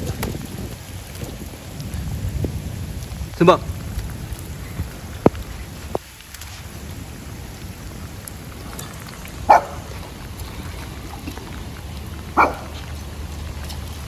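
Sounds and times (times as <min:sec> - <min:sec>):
rain on wet pavement: 0:00.0 - 0:14.0
small dog barking: 0:09.5 - 0:09.9, 0:12.4 - 0:12.8.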